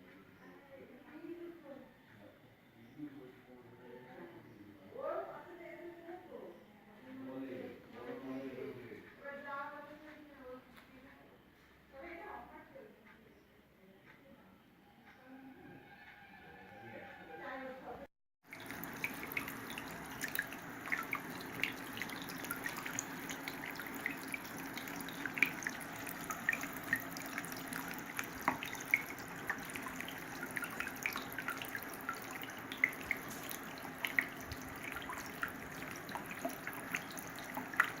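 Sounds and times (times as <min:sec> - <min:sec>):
water pump hum: 0:18.4 - 0:38.0
water trickling and splashing: 0:18.4 - 0:38.0.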